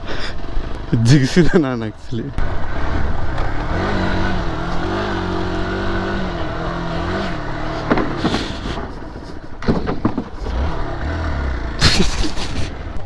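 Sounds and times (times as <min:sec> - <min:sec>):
dirt bike engine running: 0:00.0 - 0:13.0
low rumble: 0:02.3 - 0:09.6
sharp knocks: 0:07.8 - 0:09.0, 0:09.6 - 0:10.5.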